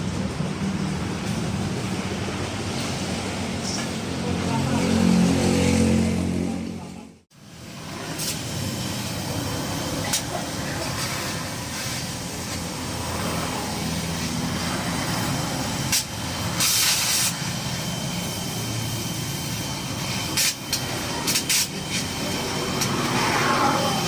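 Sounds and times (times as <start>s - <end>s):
hissing burst: 7.5s - 24.0s.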